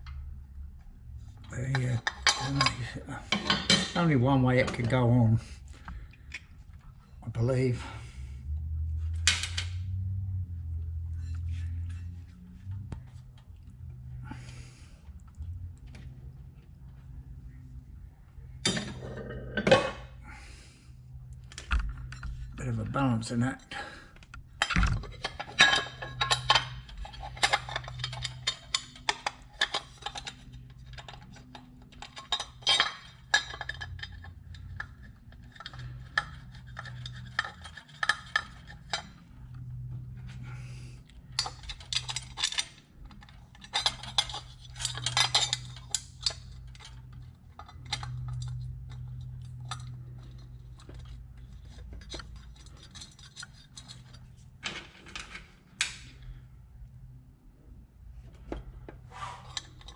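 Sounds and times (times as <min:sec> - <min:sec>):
steady low hum: 0:00.0 - 0:59.9
metal tools clinking and tapping: 0:01.4 - 0:05.0, 0:18.6 - 0:20.0, 0:24.3 - 0:40.5, 0:41.3 - 0:56.0.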